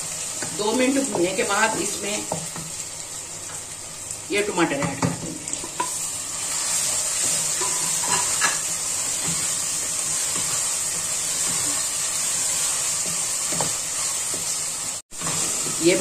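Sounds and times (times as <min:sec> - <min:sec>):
onions and tomatoes sizzling in oil: 0:00.0 - 0:16.0
wooden spatula scraping a pot: 0:05.8 - 0:14.6.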